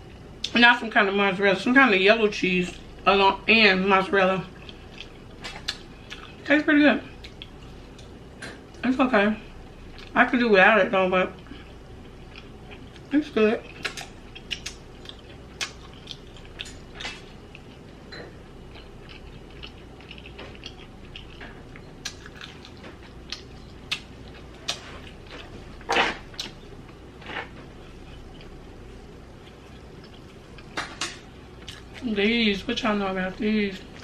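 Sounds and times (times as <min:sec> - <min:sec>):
person chewing food: 0:04.5 - 0:06.4, 0:07.1 - 0:08.2, 0:11.4 - 0:30.8, 0:31.5 - 0:32.1.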